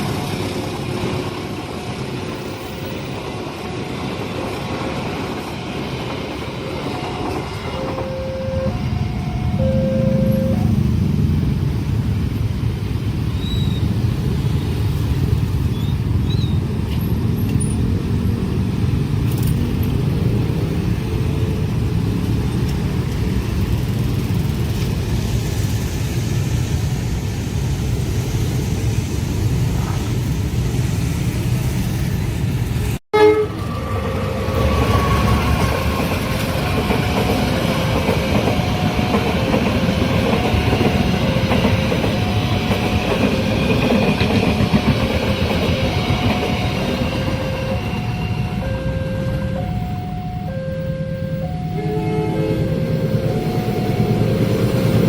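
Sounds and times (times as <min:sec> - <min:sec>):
train rumbling past: 0:00.0 - 0:55.0
train horn: 0:07.7 - 0:10.8, 0:33.1 - 0:36.1, 0:50.6 - 0:54.4
two-note crossing signal: 0:07.7 - 0:10.9, 0:47.2 - 0:55.0.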